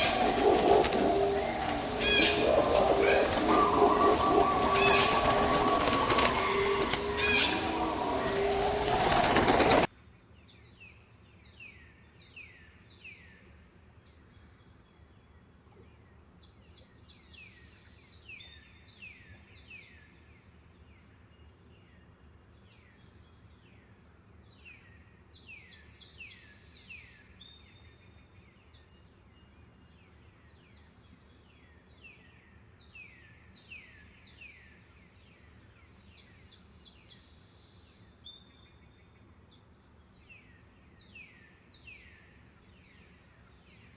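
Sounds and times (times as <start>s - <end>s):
high-pitched insect trill: 0.0s - 9.8s
loud rush of sound: 0.0s - 9.9s
small bird chirping: 0.0s - 9.9s.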